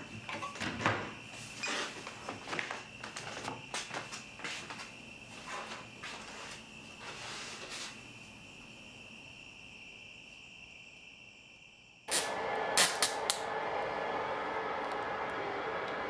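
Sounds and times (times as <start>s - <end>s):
crickets chirring: 0.0s - 12.2s
rushing room noise: 12.1s - 16.0s.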